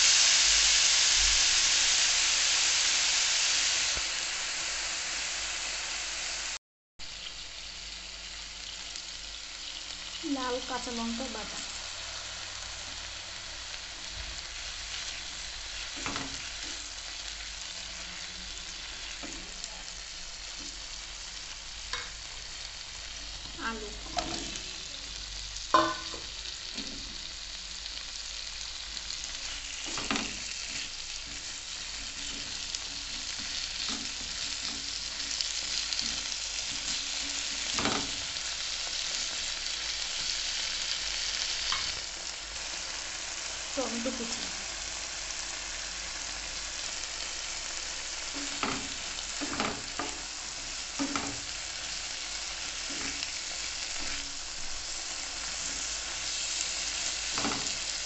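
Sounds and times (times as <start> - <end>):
paste sizzling in hot oil: 0.0 - 58.0
sharp knocks against pan: 25.8 - 26.3
wooden spatula stirring in pan: 29.2 - 40.4, 47.8 - 58.0.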